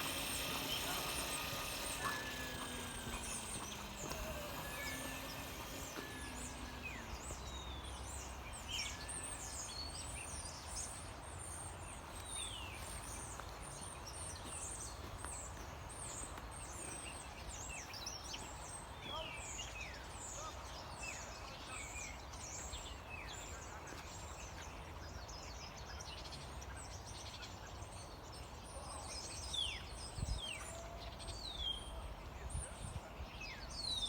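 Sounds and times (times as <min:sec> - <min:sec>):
faint gliding whine: 0:00.0 - 0:09.7
birds chirping: 0:00.0 - 0:27.0.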